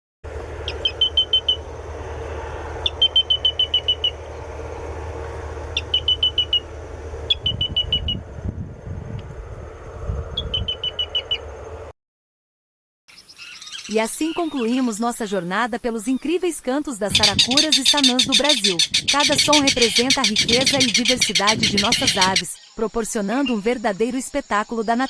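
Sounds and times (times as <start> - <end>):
crake calling high notes: 17.0 - 22.5.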